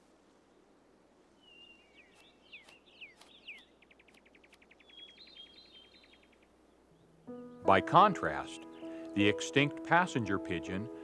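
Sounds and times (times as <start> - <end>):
small bird chirping and trilling: 1.4 - 7.7.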